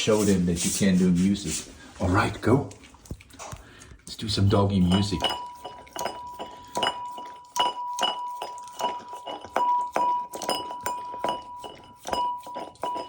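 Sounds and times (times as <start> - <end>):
dog licking container: 0.1 - 13.0
bowl ringing when knocked: 4.8 - 13.0.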